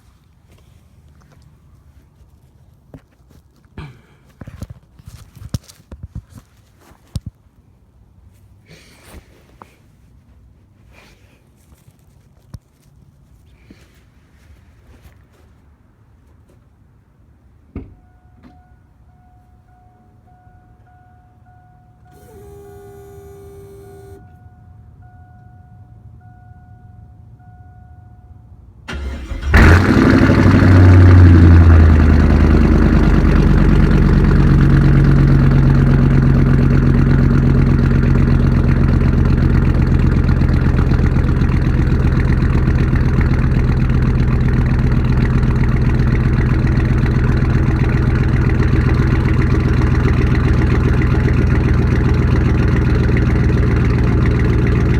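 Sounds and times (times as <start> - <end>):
truck engine cranking and idling: 22.0 - 24.5, 28.9 - 54.9.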